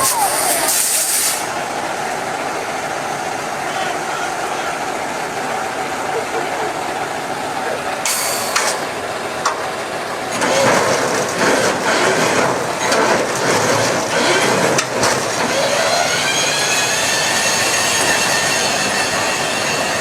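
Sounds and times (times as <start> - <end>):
heavy machinery noise: 0.0 - 20.0
high steady squeal: 15.4 - 20.0.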